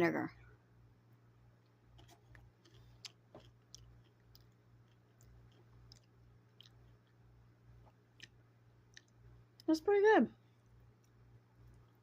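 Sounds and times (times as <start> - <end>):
steady low hum: 0.0 - 12.0
person chewing: 1.6 - 9.6, 10.6 - 12.0.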